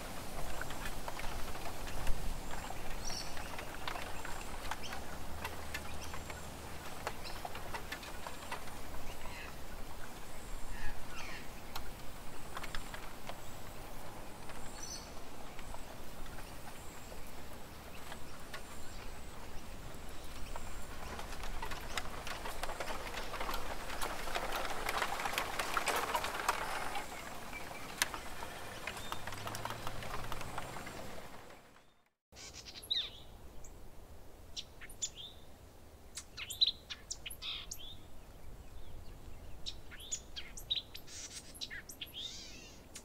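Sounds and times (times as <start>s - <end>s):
light ticking and pattering: 11.7s - 31.7s
bird chirps: 36.1s - 38.0s.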